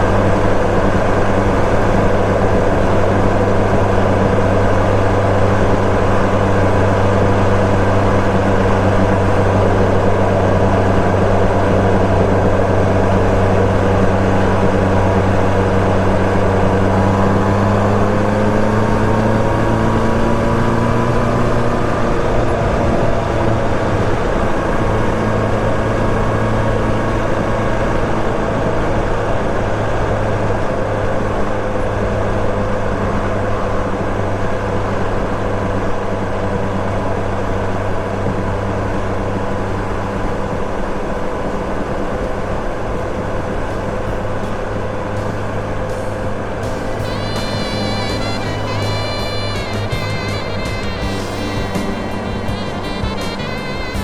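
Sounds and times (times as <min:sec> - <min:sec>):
motorcycle engine cruising: 0:37.6 - 0:54.0.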